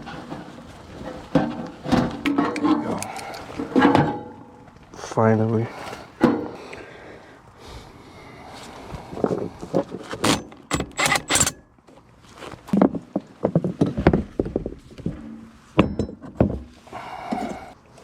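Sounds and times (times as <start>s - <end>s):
metal tools clanking: 2.3s - 4.6s, 10.2s - 11.7s.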